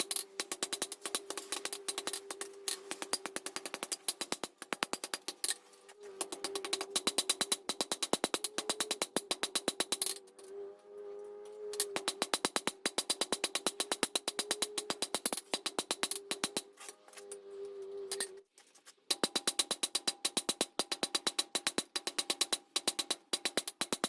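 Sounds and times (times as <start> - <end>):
hammer striking steel on anvil: 0.0 - 10.4, 11.7 - 18.4.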